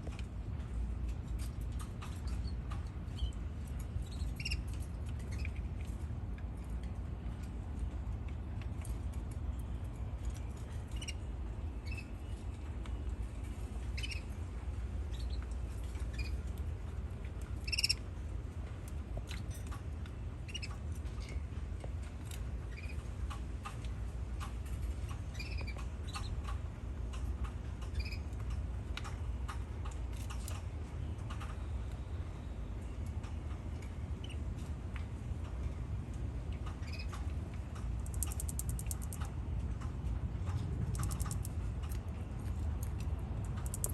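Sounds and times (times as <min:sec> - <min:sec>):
steady low hum: 0:00.0 - 0:43.9
canaries chirping: 0:04.0 - 0:05.6, 0:13.9 - 0:14.3, 0:17.6 - 0:18.0
small clicks: 0:36.5 - 0:39.9, 0:40.5 - 0:43.9.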